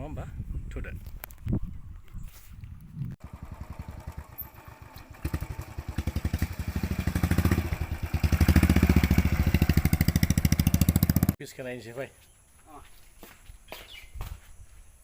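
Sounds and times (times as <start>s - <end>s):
motorcycle engine running: 3.2s - 11.4s.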